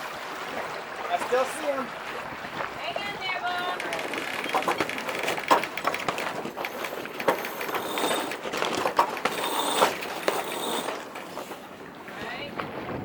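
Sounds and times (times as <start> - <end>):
rapid mechanical clicks and knocks: 3.6 - 11.6.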